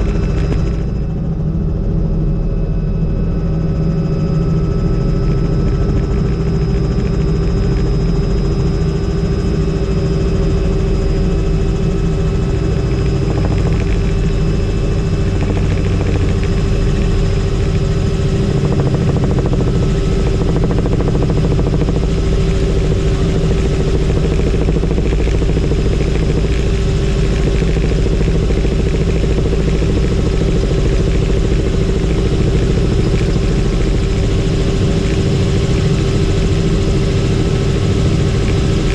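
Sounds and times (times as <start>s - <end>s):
helicopter rotor and engine: 0.0s - 38.9s
high turbine whine: 0.0s - 38.9s.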